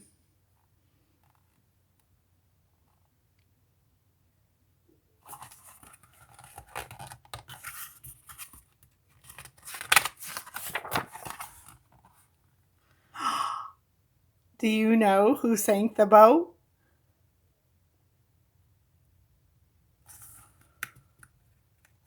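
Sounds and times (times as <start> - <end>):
book pages rustling: 5.2 - 12.3, 20.1 - 22.0.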